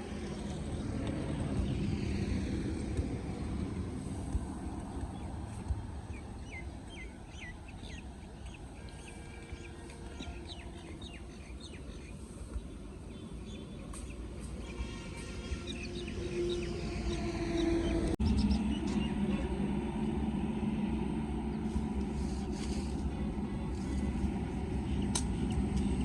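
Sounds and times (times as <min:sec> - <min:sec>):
small birds chirping: 0:04.9 - 0:19.2.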